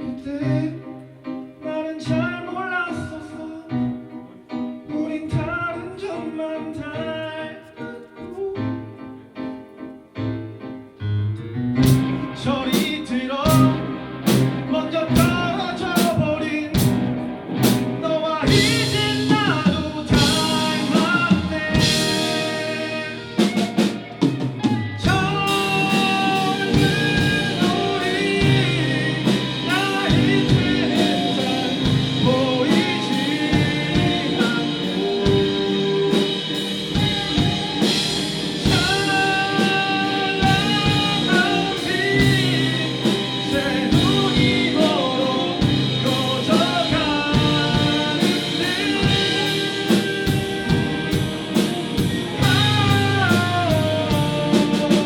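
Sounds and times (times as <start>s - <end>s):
person singing: 0.0s - 9.3s, 11.9s - 55.0s
rock band playing live: 11.5s - 55.0s.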